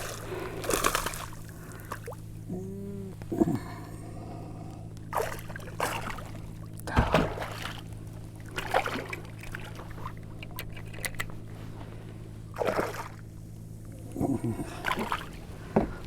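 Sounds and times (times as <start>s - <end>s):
water splashing and trickling: 0.0s - 2.2s, 5.2s - 11.3s
steady low hum: 0.0s - 16.0s.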